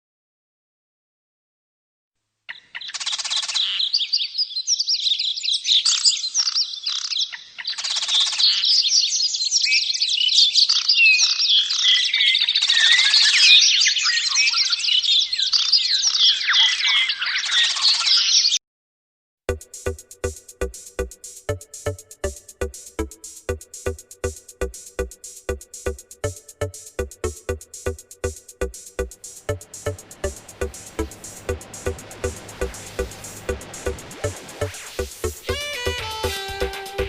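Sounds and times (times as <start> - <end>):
harsh buzzing rattle call: 29.2 - 37.0.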